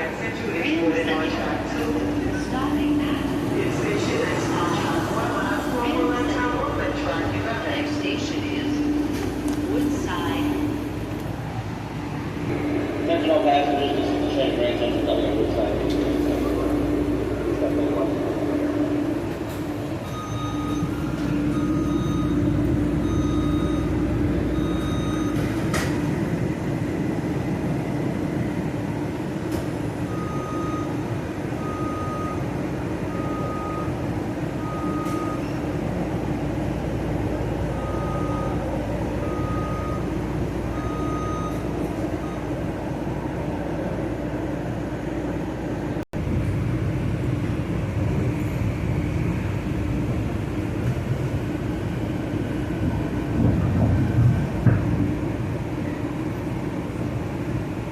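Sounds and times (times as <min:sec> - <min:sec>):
electric train hum: 0:00.0 - 0:57.9
electronic beeps: 0:20.0 - 0:25.4.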